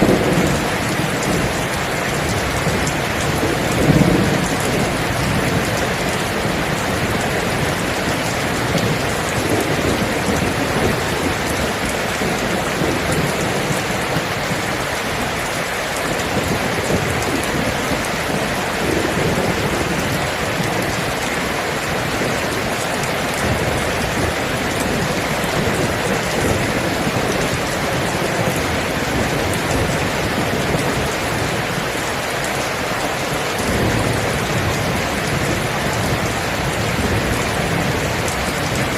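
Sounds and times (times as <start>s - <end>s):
distant thunder rumbling: 0.0s - 32.0s, 33.6s - 38.9s
heavy rain: 0.0s - 38.9s.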